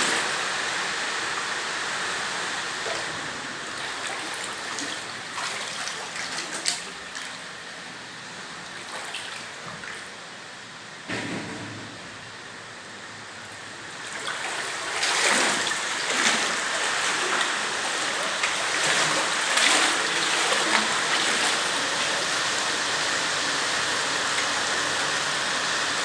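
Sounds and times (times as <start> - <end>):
water splashes: 2.0 - 7.9, 8.5 - 10.3, 13.5 - 26.0.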